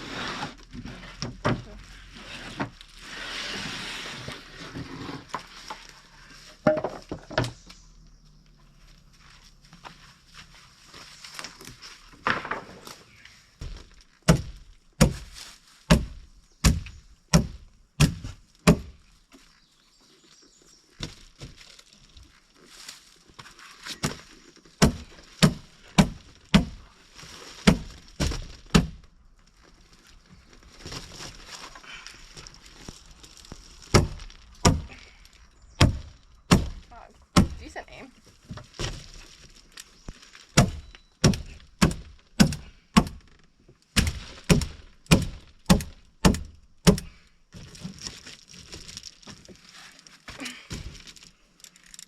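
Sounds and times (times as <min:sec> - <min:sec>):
heavy blows on wood: 0:13.6 - 0:19.0, 0:24.8 - 0:26.9, 0:27.6 - 0:29.1, 0:33.9 - 0:35.2, 0:35.8 - 0:37.8, 0:40.6 - 0:43.4, 0:44.0 - 0:47.3.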